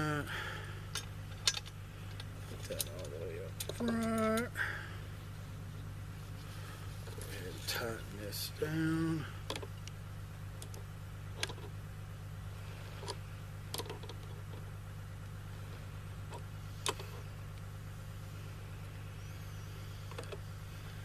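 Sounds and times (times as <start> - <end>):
steady low hum: 0.0 - 21.0
metal parts clicking and tapping: 0.9 - 4.5.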